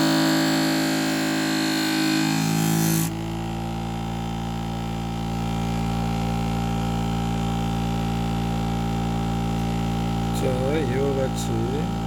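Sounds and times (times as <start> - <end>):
grinding machine motor humming: 0.0 - 12.0.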